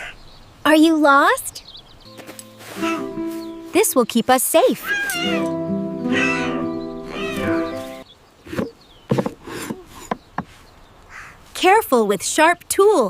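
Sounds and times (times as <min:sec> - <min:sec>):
soft cartoon music: 0:02.1 - 0:08.0
small animal meow-like cries: 0:04.8 - 0:07.6.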